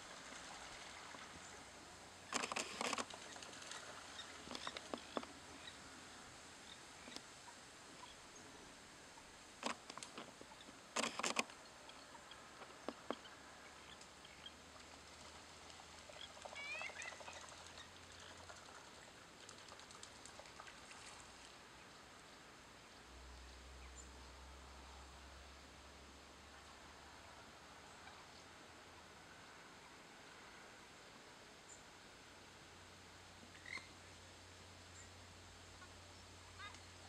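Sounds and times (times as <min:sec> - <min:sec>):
faint outdoor hiss: 0:00.0 - 0:37.0
sharp clicks: 0:02.3 - 0:03.2, 0:09.6 - 0:10.3, 0:11.0 - 0:11.6
bird chirps: 0:33.5 - 0:33.9.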